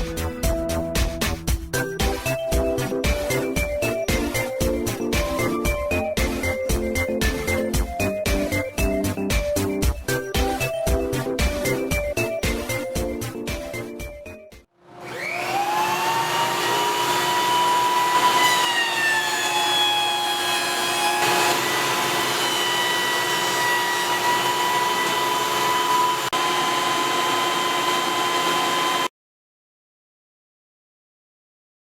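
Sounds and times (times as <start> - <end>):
jointer whine: 14.9 - 29.1.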